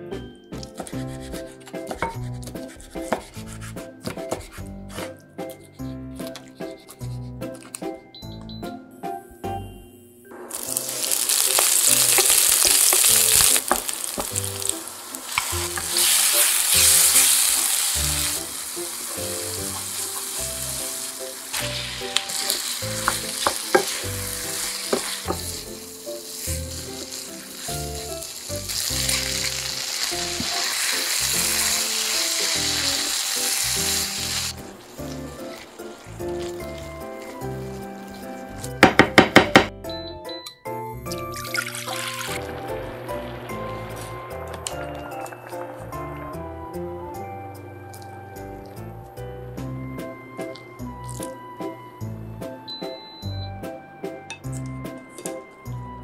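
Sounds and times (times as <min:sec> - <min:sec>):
food sizzling in a frying pan: 0:10.5 - 0:38.4, 0:41.8 - 0:46.1.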